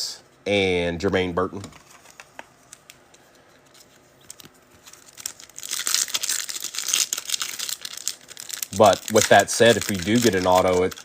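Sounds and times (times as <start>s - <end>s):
wrapper tearing and crinkling: 4.2s - 11.0s.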